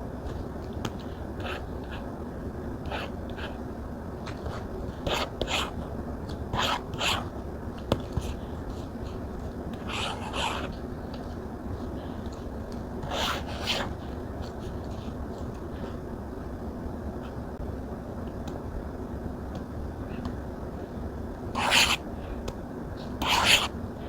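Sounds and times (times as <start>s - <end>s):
stylus scratching tablet screen: 1.0s - 2.1s, 2.8s - 3.6s, 4.2s - 5.9s, 6.5s - 7.3s, 7.9s - 15.9s, 21.6s - 22.0s, 23.0s - 23.8s.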